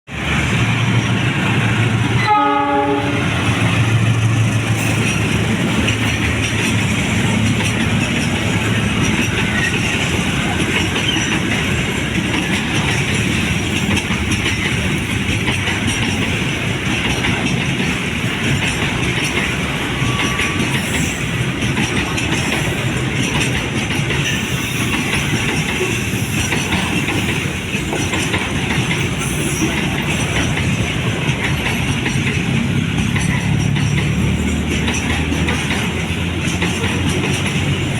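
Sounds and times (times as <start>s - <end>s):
freight train rumbling on rails: 0.0s - 37.9s
train horn: 2.1s - 3.6s.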